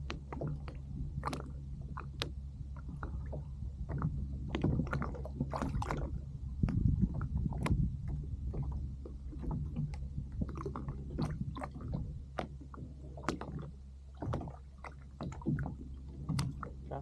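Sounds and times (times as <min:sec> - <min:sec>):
small knocks and ticks: 0:00.0 - 0:05.0, 0:06.6 - 0:06.9, 0:15.2 - 0:16.7
steady low rumble: 0:00.0 - 0:17.0
water lapping against kayak hull: 0:00.0 - 0:17.0.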